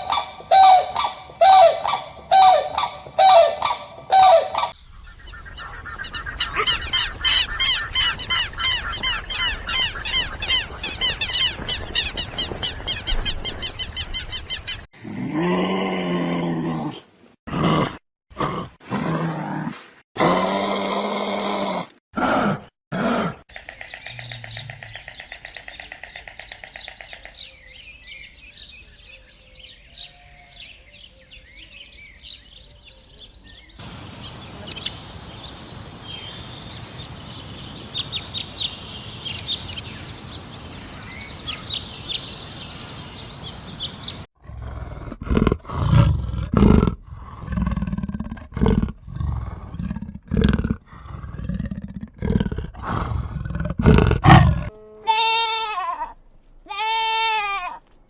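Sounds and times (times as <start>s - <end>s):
high bird chirps: 0.0s - 9.0s, 33.7s - 44.3s
steady hiss: 33.8s - 44.2s
large animal low calls: 46.6s - 56.1s.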